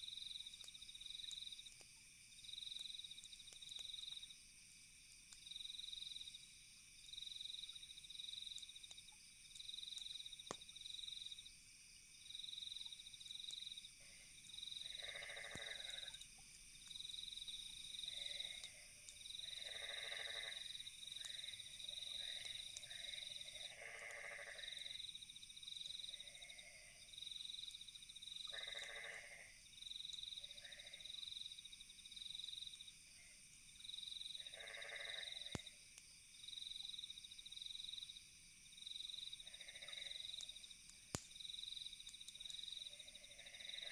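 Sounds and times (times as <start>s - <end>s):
campfire popping: 0.0s - 26.5s, 33.5s - 43.9s
crickets trilling: 0.0s - 43.9s
high insect drone: 7.1s - 43.9s
frogs croaking: 12.2s - 35.8s, 38.8s - 43.9s.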